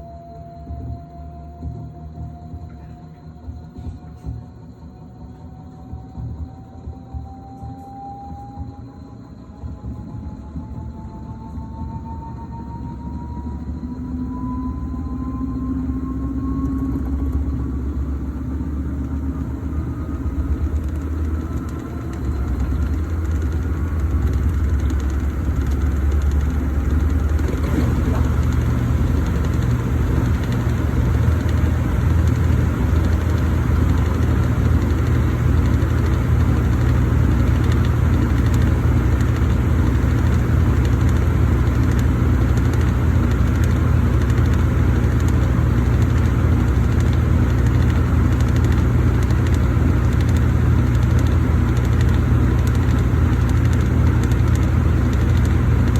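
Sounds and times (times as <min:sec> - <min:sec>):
washing machine spinning: 0:13.0 - 0:55.9.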